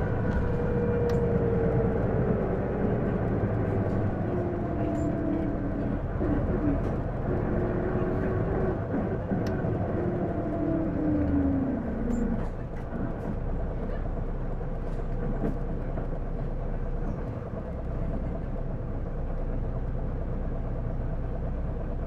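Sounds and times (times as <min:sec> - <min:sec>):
bus drivetrain whine: 0:00.0 - 0:22.0
engine and road hum: 0:00.0 - 0:22.0.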